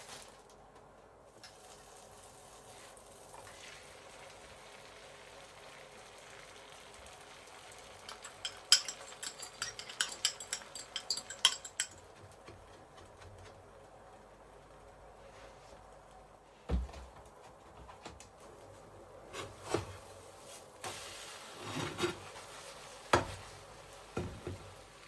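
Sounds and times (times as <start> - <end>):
light clicks and clinks: 8.1 - 12.3.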